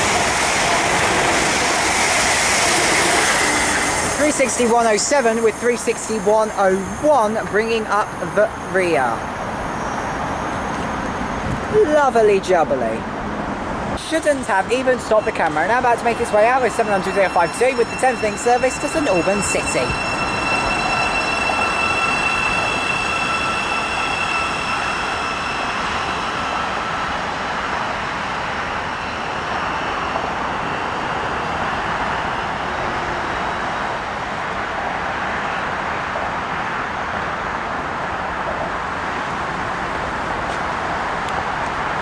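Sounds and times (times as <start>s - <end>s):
high-pitched electric train whine: 0.0s - 11.8s, 12.8s - 42.0s
train rumbling on rails: 0.0s - 42.0s.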